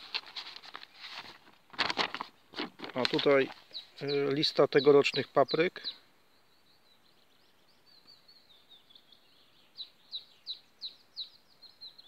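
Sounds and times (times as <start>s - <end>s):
small songbird chirping: 3.3s - 12.0s.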